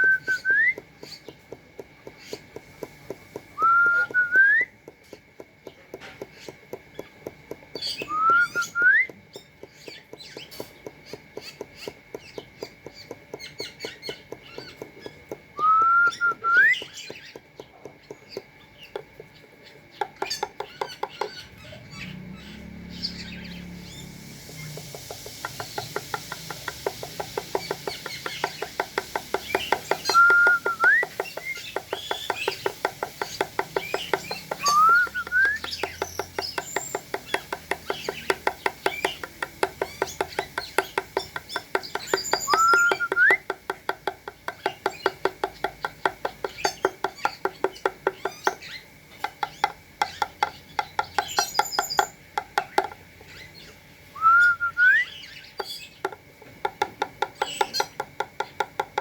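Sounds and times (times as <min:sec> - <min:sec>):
rising whistled bird calls: 0:00.0 - 0:01.1, 0:03.6 - 0:04.8, 0:07.9 - 0:09.2, 0:15.6 - 0:17.1, 0:21.4 - 0:43.5, 0:53.3 - 0:55.9.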